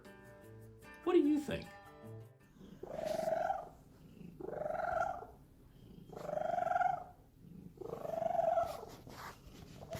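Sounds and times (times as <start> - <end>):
cat purring: 2.4 - 9.9.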